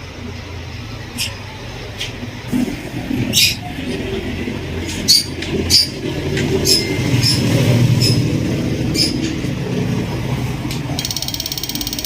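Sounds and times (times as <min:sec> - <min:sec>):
pump and motor rumble: 0:00.0 - 0:12.0.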